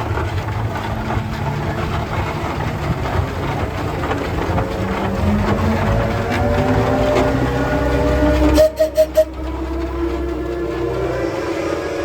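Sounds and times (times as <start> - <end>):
steam engines rumbling and hissing: 0.0 - 12.0
low steam whistle: 6.6 - 12.0.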